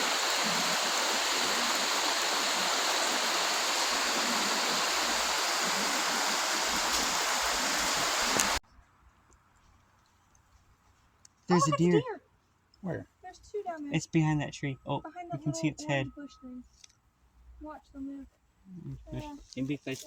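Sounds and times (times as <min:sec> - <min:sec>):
stream water rushing: 0:00.0 - 0:08.6.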